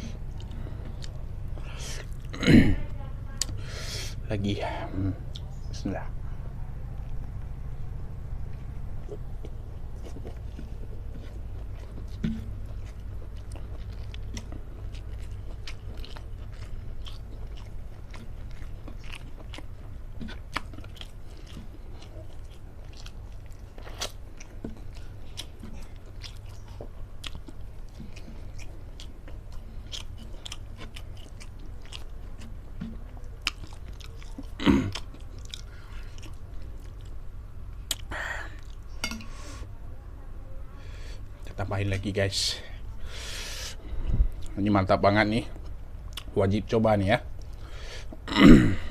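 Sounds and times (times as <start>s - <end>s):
chewing and biting food: 0.0s - 2.4s, 7.0s - 39.3s, 45.5s - 46.4s
low steady hum: 0.0s - 48.9s.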